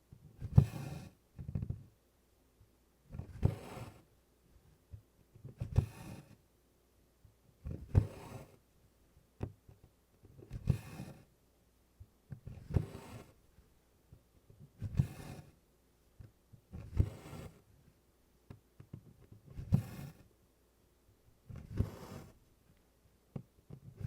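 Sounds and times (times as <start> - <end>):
thread pulled with swishing rasp: 3.1 - 4.1, 5.4 - 6.4, 12.4 - 13.4, 14.8 - 15.6, 16.7 - 17.6, 18.9 - 20.3, 21.5 - 22.4.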